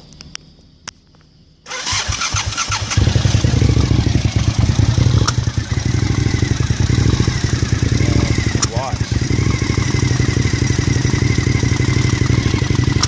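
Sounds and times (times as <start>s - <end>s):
engine starter cranking: 1.7s - 5.6s, 7.2s - 11.5s
engine running rough: 1.7s - 13.0s.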